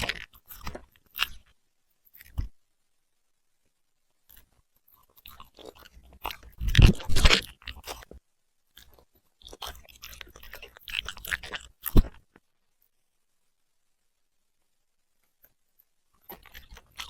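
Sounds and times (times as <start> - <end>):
puppy chewing and crunching food: 0.0 - 2.6, 4.3 - 12.5, 16.1 - 17.0.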